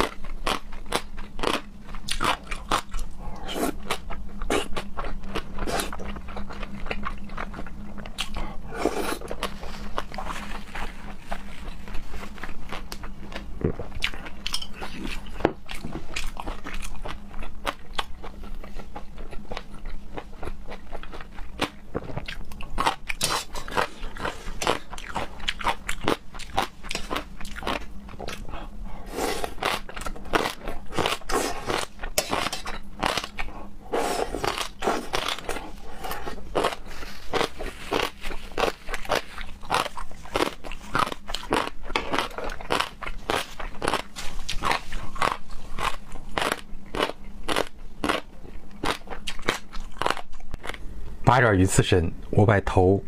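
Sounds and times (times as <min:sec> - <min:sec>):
person chewing crunchy food: 0:00.0 - 0:50.9.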